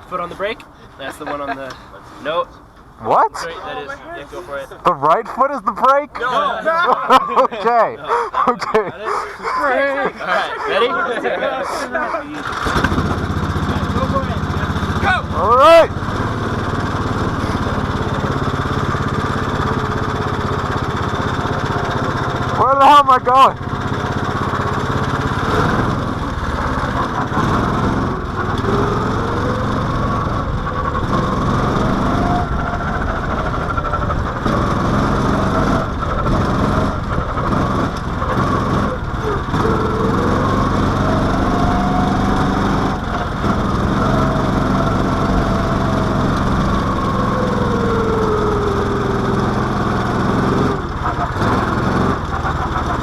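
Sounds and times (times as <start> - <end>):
small car engine running: 12.3 - 53.0.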